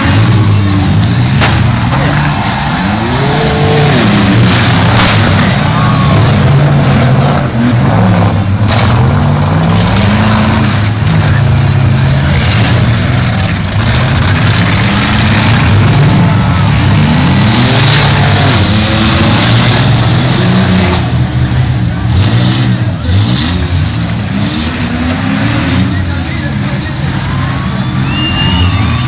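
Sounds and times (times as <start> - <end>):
sharp bangs: 0.0 - 3.0
car engines revving: 0.0 - 29.0.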